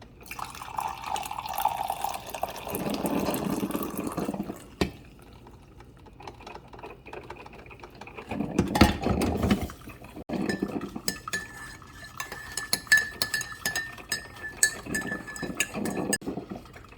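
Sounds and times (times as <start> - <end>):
faint steady ringing: 10.4 - 16.2
spoon clinking against mug: 10.4 - 16.2.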